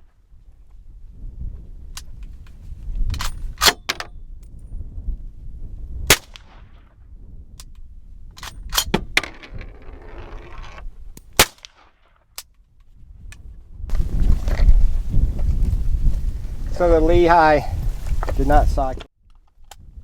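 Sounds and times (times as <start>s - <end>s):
metallic clicks of rifle action: 1.9s - 4.1s, 7.6s - 9.0s
rifle shots: 6.1s - 6.7s, 11.4s - 11.9s.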